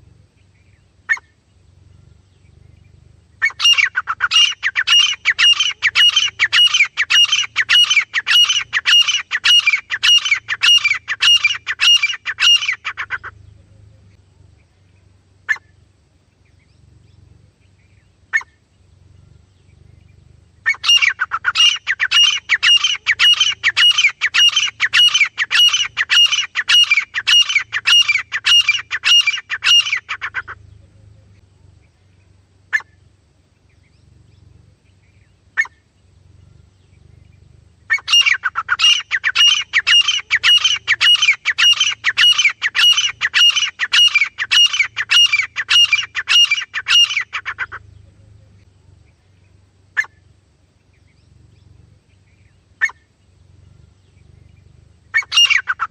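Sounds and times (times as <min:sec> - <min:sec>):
francolin calling: 0:00.0 - 0:55.9.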